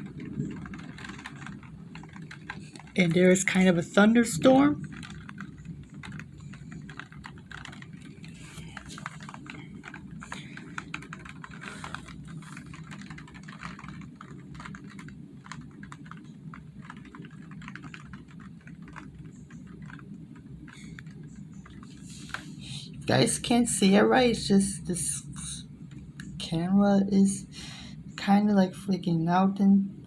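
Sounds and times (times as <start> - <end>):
raindrops striking a hard surface: 0.0 - 22.5
steady low background noise: 0.0 - 30.0.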